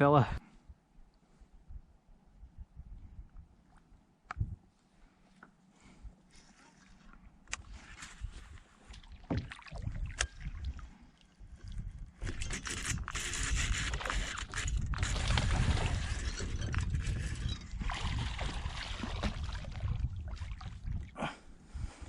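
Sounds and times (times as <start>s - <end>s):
water rushing against hull: 12.6s - 21.1s.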